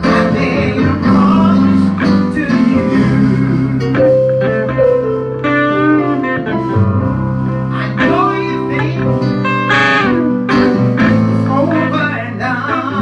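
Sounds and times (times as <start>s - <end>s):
bass line: 0.0s - 13.0s
gospel band music: 0.0s - 13.0s
sliding guitar notes: 0.0s - 13.0s.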